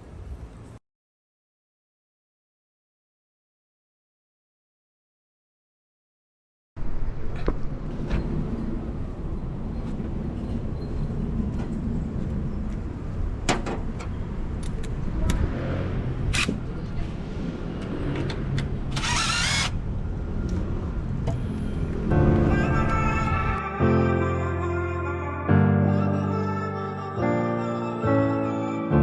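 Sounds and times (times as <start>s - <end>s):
music: 22.1s - 29.0s.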